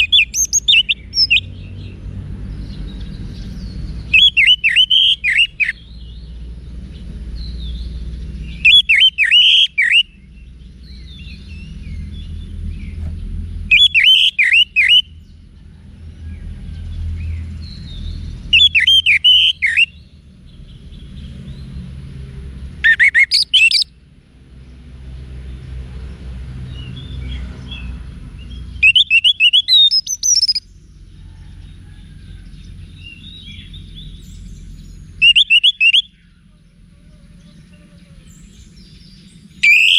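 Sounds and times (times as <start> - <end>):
thrush singing whistled notes: 0.0 - 2.0, 2.6 - 13.0, 13.6 - 15.4, 17.2 - 21.8, 22.8 - 24.0, 26.7 - 31.1, 32.6 - 39.9
low rumble of background noise: 0.0 - 39.9.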